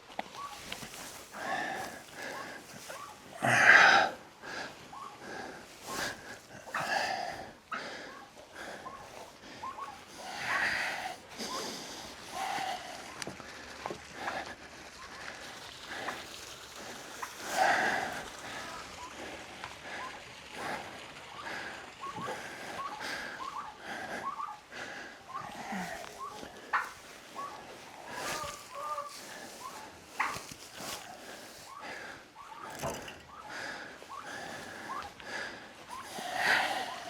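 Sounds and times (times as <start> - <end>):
poultry chirping: 0.3 - 1.2, 1.8 - 3.2, 4.9 - 5.2, 8.1 - 10.6, 22.0 - 24.6, 25.3 - 32.7, 34.1 - 35.1, 35.9 - 37.0
livestock calling: 0.3 - 16.2, 16.8 - 35.2.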